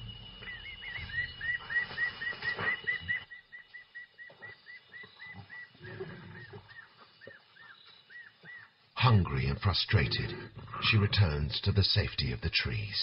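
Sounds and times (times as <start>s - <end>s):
bird chirping: 0.0s - 11.7s
low noise: 8.8s - 13.0s.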